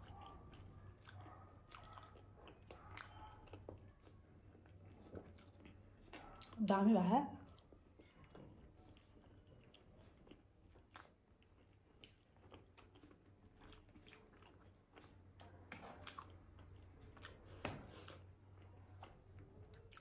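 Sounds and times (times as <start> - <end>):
wet mouth clicks chewing: 0.1 - 6.6, 7.4 - 15.3.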